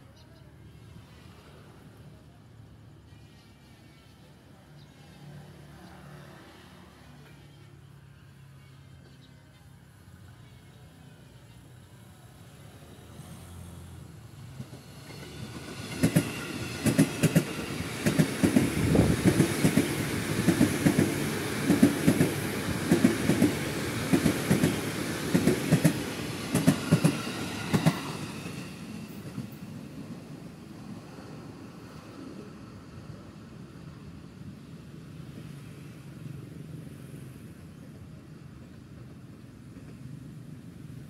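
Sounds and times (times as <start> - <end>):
electric train passing: 0.3 - 9.0, 9.8 - 41.0.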